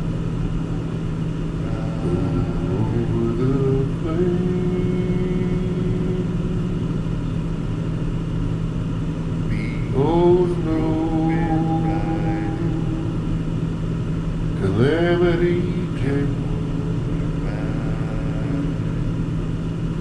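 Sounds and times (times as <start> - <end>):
rising pitched tone: 1.6 - 7.2.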